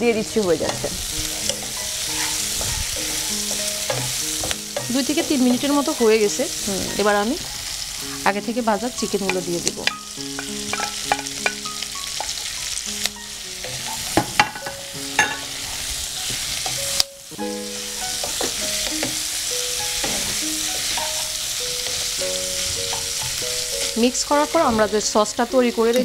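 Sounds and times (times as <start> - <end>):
food sizzling in a frying pan: 0.0 - 26.0
wooden spatula scraping a pan: 0.5 - 7.6, 20.0 - 25.1.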